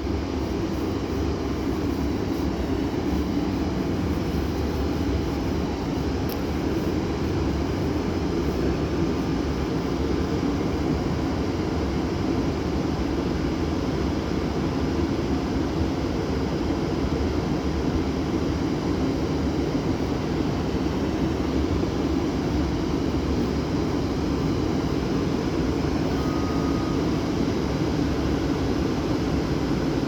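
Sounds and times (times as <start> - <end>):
train rumbling: 25.5 - 28.4.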